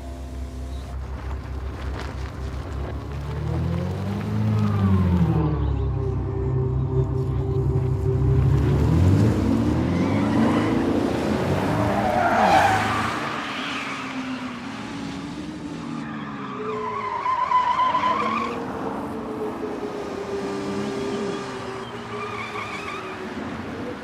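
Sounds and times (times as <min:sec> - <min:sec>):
vehicle engines revving: 0:00.0 - 0:24.0
high tire squeal: 0:09.7 - 0:14.9, 0:16.0 - 0:18.8, 0:20.9 - 0:23.5.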